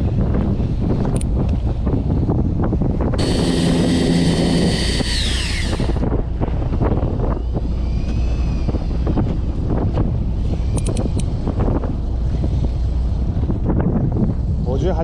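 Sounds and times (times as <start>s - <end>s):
wind: 0.0s - 15.0s
boat noise: 3.0s - 13.6s
high motor whine sliding down: 3.2s - 6.5s.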